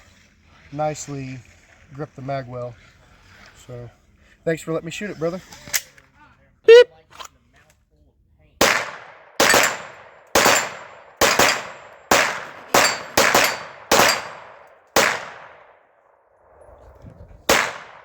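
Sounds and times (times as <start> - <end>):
handgun shots with echo: 8.6 - 15.6, 17.5 - 18.0.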